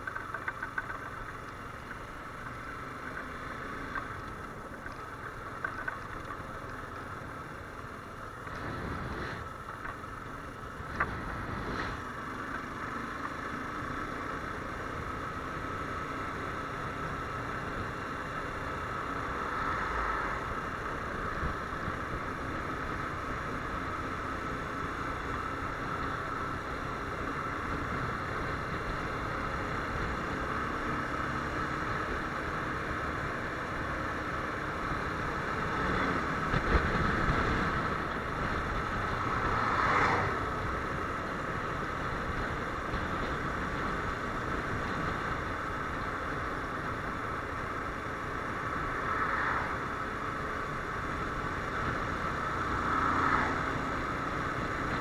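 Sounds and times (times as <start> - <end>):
motorcycle engine running: 0.0 - 55.0
wind rushing over microphone: 34.9 - 47.7.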